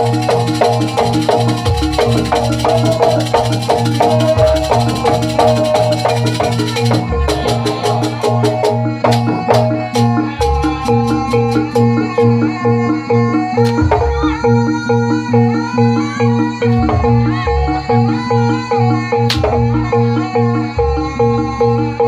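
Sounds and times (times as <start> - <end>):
shaker-like rattle: 0.0 - 8.2
struck metallophone notes: 0.0 - 22.0.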